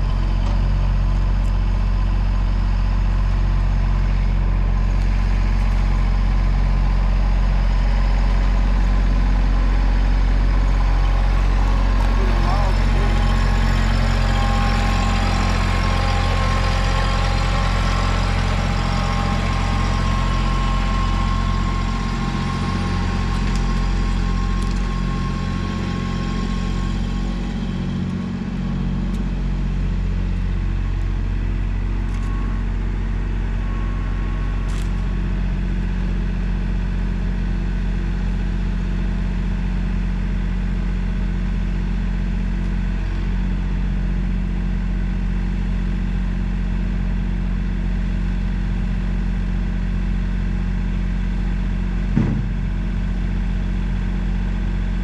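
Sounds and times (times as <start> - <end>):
large engine running: 0.0 - 55.0.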